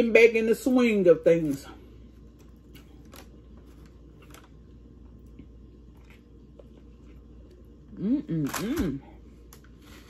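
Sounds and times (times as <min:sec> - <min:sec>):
low steady background hum: 0:00.0 - 0:10.0
crispy food chewing crunches: 0:01.4 - 0:08.6.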